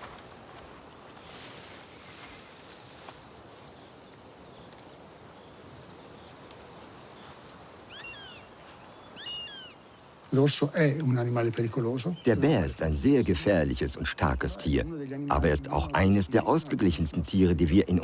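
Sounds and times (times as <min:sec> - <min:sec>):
swooping animal calls: 0:07.9 - 0:08.5, 0:09.1 - 0:09.8.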